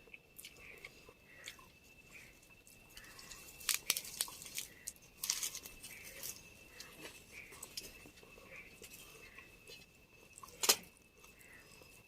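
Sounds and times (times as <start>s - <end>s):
person chewing crisp food: 2.8s - 11.8s.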